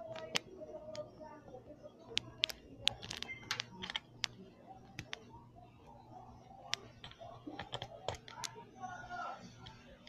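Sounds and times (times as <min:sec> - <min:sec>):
faint low hum: 0:00.0 - 0:10.0
light clicks and taps: 0:06.6 - 0:08.6.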